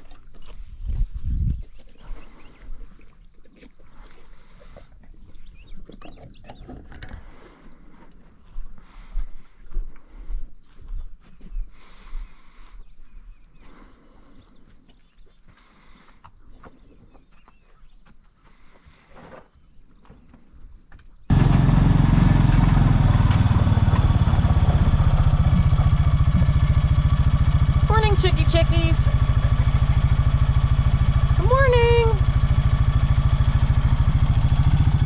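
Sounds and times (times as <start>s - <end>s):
engine running with fast pulse: 21.3s - 35.0s.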